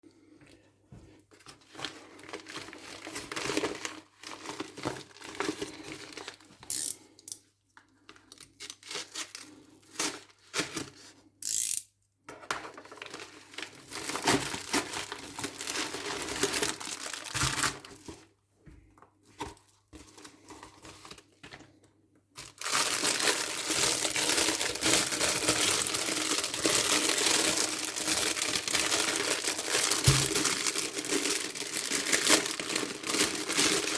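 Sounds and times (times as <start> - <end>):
plastic packaging crinkling: 1.8 - 7.1, 12.7 - 18.2, 22.4 - 33.9.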